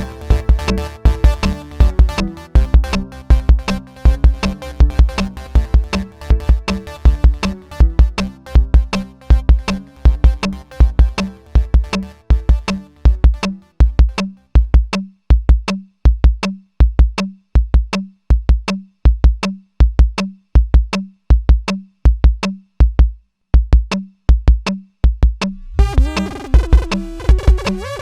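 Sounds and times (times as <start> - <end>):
synthesizer layers: 0.0 - 14.3, 25.5 - 28.0
drum machine kick pattern: 0.0 - 28.0.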